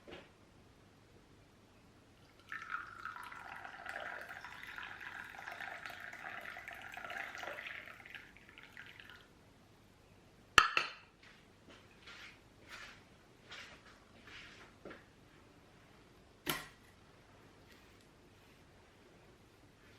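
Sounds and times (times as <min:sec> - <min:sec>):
liquid pouring: 0:02.2 - 0:09.3.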